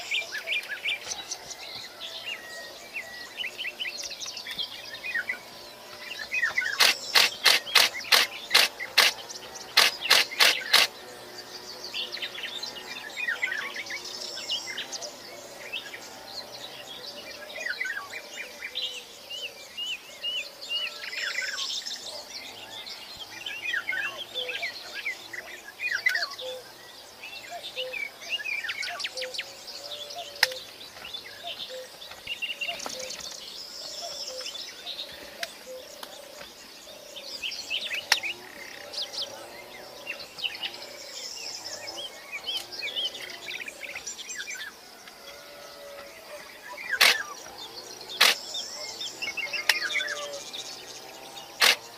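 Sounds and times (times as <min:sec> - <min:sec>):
birds chirping: 0:00.0 - 0:51.9
lower repeated bird calls: 0:00.0 - 0:51.9
sharp clicks: 0:06.7 - 0:11.0, 0:47.0 - 0:47.2, 0:48.2 - 0:48.5, 0:51.6 - 0:51.8.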